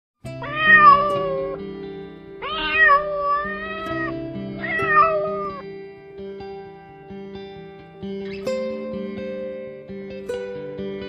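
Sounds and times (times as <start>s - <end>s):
background music: 0.2s - 11.0s
cat meowing: 0.4s - 1.6s, 2.4s - 5.6s.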